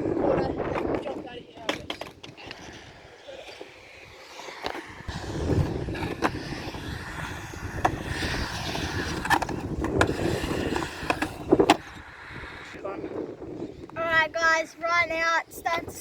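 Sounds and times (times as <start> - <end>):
skateboard wheels rumbling: 0.0 - 16.0
skateboard clacks: 0.7 - 11.9.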